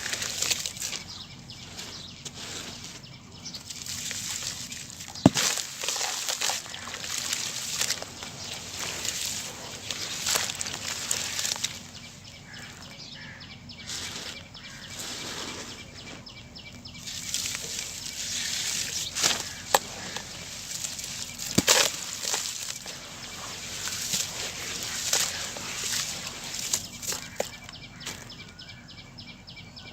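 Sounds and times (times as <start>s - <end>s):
cement crumbling with gritty crunching: 0.0s - 12.9s, 16.7s - 28.4s
sharp cracks: 17.2s - 27.6s.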